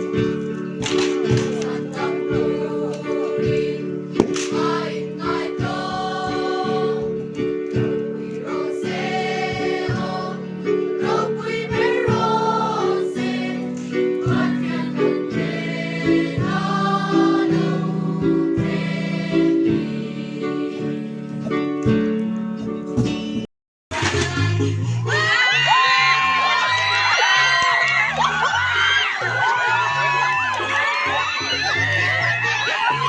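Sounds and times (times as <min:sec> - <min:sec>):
group of voices singing: 0:00.0 - 0:21.2.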